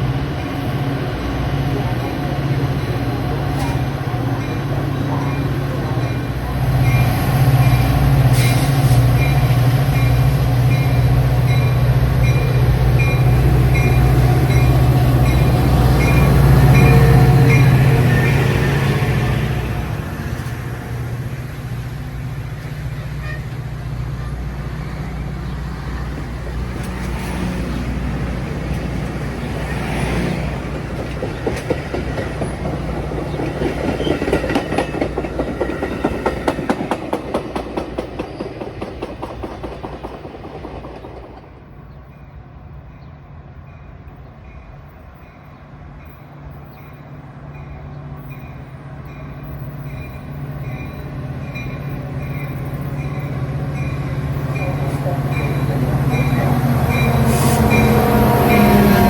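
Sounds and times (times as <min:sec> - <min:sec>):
train engine rumble: 0:00.0 - 0:59.0
wheels clattering over rail joints: 0:30.3 - 0:42.0.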